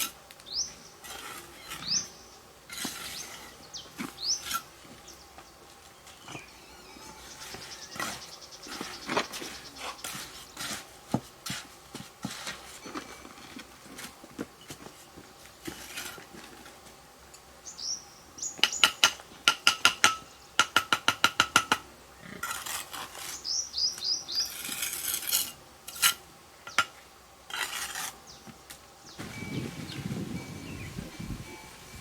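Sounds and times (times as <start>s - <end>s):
scraping sounds: 1.0s - 5.1s, 6.1s - 16.9s, 22.4s - 23.6s, 24.4s - 26.2s, 27.5s - 28.2s.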